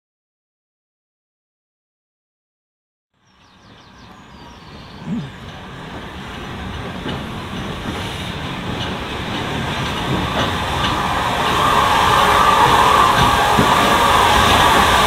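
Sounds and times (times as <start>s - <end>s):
steam train running: 3.3s - 15.0s.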